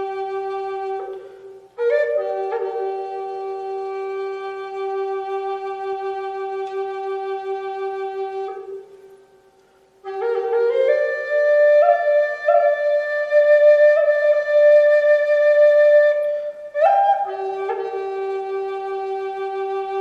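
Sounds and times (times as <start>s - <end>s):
solo flute melody: 0.0s - 20.0s.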